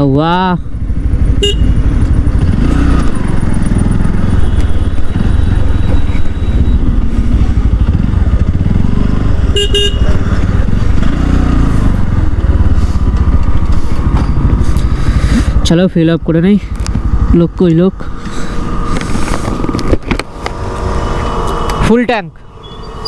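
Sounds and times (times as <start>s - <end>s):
motorcycle engine rumbling: 0.0s - 23.0s
vehicle horn: 1.4s - 2.0s, 4.2s - 6.8s, 9.5s - 10.3s.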